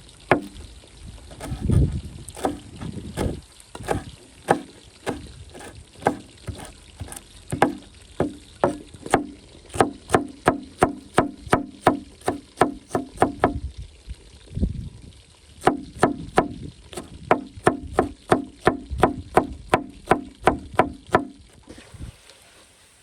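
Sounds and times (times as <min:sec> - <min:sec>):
low handling noise: 0:00.1 - 0:13.6
chopping on wooden board: 0:00.3 - 0:00.6, 0:01.4 - 0:13.6, 0:15.6 - 0:21.5.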